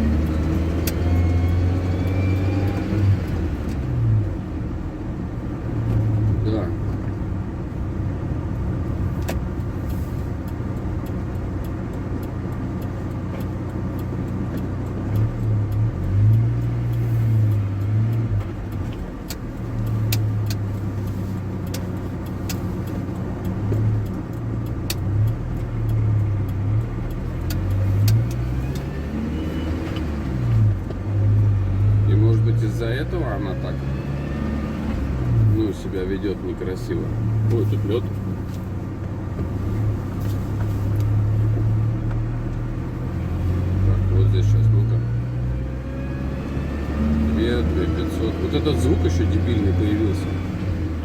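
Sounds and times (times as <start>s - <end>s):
van engine revving: 0.0s - 51.0s
sharp clicks: 9.2s - 31.5s.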